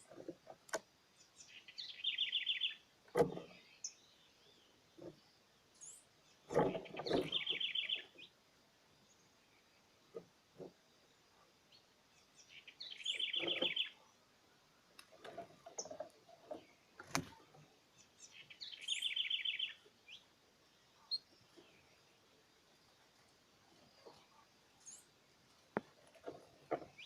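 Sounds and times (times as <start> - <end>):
songbird trilling: 1.3 - 2.8, 6.7 - 8.3, 12.4 - 14.0, 18.0 - 20.3
high bird chirps: 1.4 - 2.8, 6.8 - 8.3, 12.4 - 14.0, 18.2 - 20.2.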